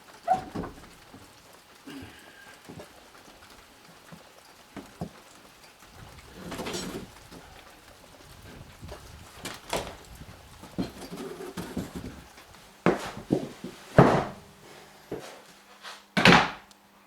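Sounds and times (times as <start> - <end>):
rain falling: 0.0 - 14.7
wooden door scraping: 0.3 - 1.3, 5.9 - 7.6, 8.2 - 14.5
knocks on wooden door: 12.9 - 14.4.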